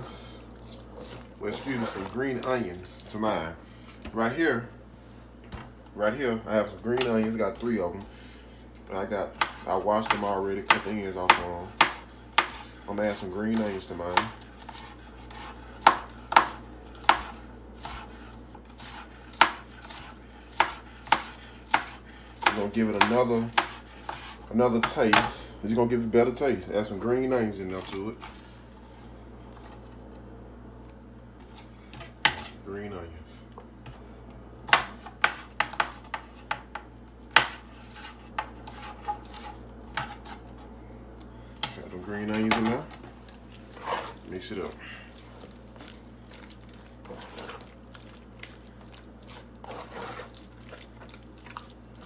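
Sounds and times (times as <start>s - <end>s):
knife chopping on cutting board: 9.3s - 18.2s, 18.8s - 25.4s, 34.7s - 40.4s.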